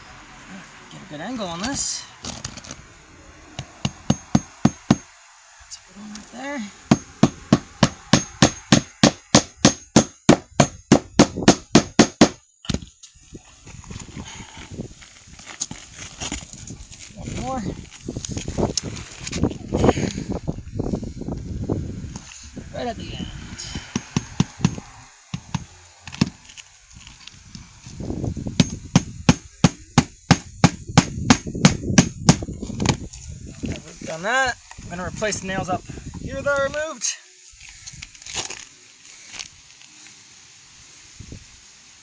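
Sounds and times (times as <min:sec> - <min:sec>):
scraping and handling of shingles: 0:00.6 - 0:03.0, 0:12.1 - 0:20.3, 0:23.8 - 0:31.3, 0:37.6 - 0:40.3
hammer striking nails: 0:03.8 - 0:05.1, 0:06.9 - 0:12.4, 0:23.9 - 0:26.4, 0:28.6 - 0:32.5.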